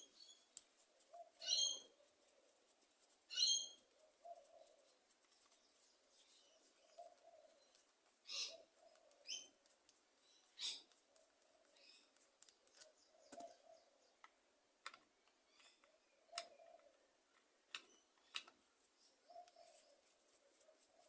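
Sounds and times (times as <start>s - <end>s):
light clicks and taps of tools: 0.0s - 0.9s, 8.8s - 10.1s, 10.8s - 13.6s, 14.2s - 19.9s
birds chirping: 0.0s - 2.5s, 3.3s - 14.5s, 15.3s - 20.1s
dove cooing: 0.9s - 2.5s, 3.4s - 4.9s, 6.5s - 9.5s, 16.2s - 17.0s, 19.2s - 21.0s.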